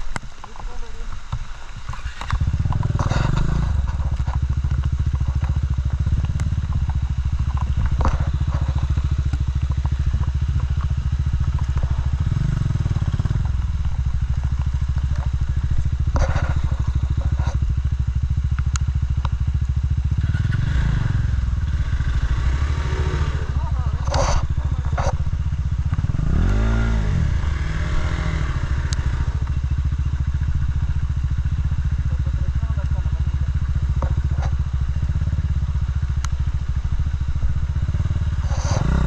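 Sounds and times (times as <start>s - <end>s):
motorcycle engine rumbling: 0.0s - 39.0s
sharp clicks and knocks: 0.1s - 17.7s.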